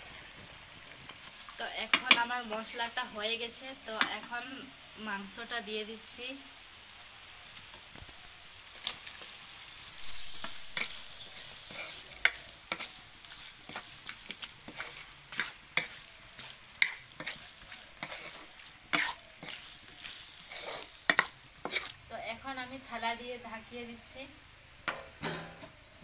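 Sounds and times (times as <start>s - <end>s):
chicken sizzling in a pan: 0.0s - 26.0s
spatula scraping a pan: 10.0s - 22.0s, 24.9s - 25.8s.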